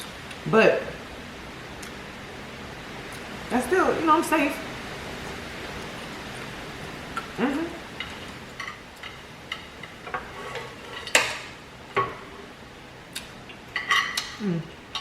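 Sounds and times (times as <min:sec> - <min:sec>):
cutlery clinking on a plate: 0:13.8 - 0:14.4.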